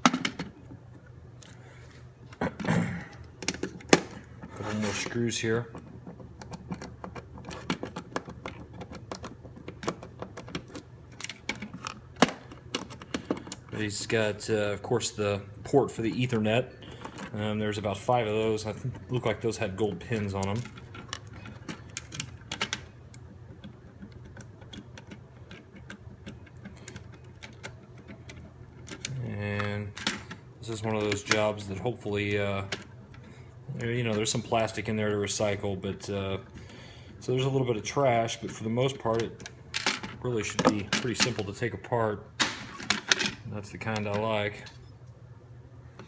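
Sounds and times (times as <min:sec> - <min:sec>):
plastic and metal parts clicking: 0:03.1 - 0:13.8, 0:19.9 - 0:30.4.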